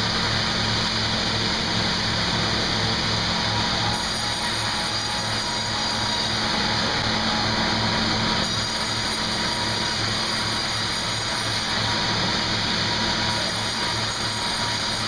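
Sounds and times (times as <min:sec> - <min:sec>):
sawmill machinery running: 0:00.0 - 0:15.0
steady machine whine: 0:00.0 - 0:15.0.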